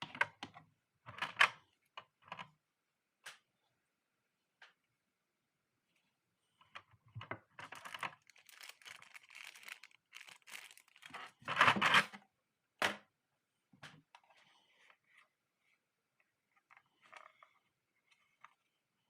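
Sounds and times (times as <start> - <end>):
crinkly material rustling: 7.6 - 11.6.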